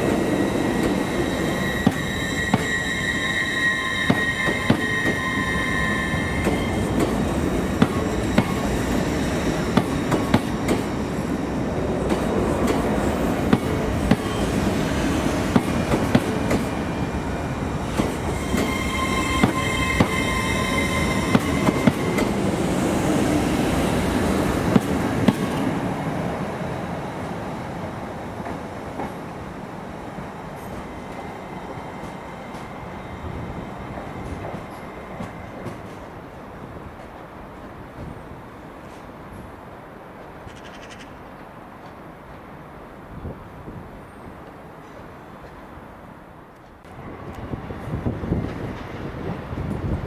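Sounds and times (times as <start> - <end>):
train wheels squealing: 0.0 - 25.8, 30.3 - 36.4
train moving slowly: 0.0 - 50.0.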